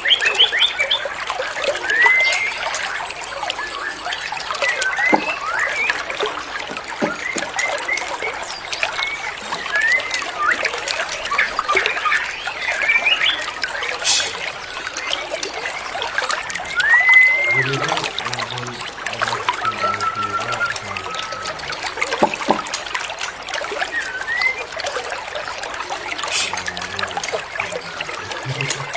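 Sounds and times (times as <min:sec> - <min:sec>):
songbirds whistling: 0:00.0 - 0:22.8, 0:23.7 - 0:28.9
trickle of running water: 0:00.0 - 0:28.9
faint music: 0:17.5 - 0:22.0.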